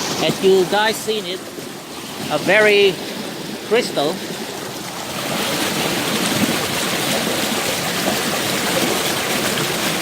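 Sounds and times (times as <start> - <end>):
creek water flowing: 0.0 - 10.0.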